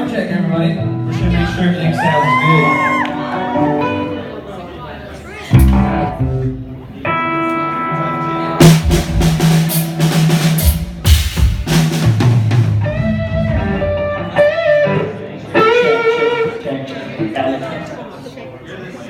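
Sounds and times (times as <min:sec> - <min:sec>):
bass notes: 0:00.8 - 0:01.9, 0:05.5 - 0:07.5, 0:08.4 - 0:15.4
electric guitar: 0:05.5 - 0:10.3, 0:12.1 - 0:16.7
drum kit hits: 0:05.6 - 0:06.8, 0:08.6 - 0:14.0.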